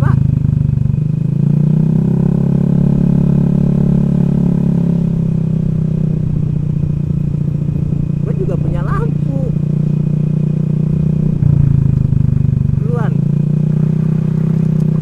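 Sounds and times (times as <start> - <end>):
scooter engine running: 0.0 - 15.0
wind rumble: 0.0 - 15.0.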